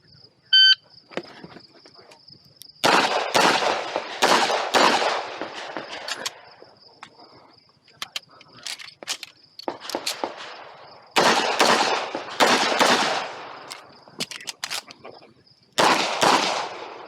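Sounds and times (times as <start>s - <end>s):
shot timer beep: 0.6s - 0.8s
handgun shots echoing: 2.8s - 6.4s, 9.1s - 13.9s, 15.8s - 17.0s.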